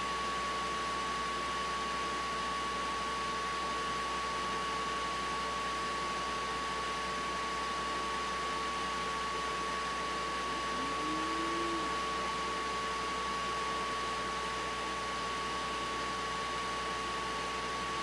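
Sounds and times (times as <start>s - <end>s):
constant high-pitched tone: 10.2s - 13.0s
short low rising tone: 10.5s - 12.0s.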